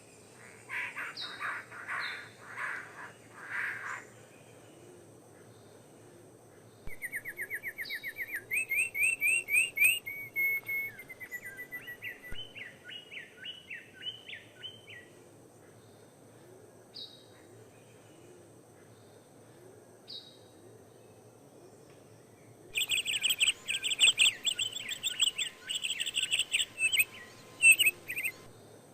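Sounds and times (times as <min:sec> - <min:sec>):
bird singing: 0:00.0 - 0:05.9, 0:06.6 - 0:16.0, 0:21.8 - 0:28.8
short bird calls: 0:22.7 - 0:28.5.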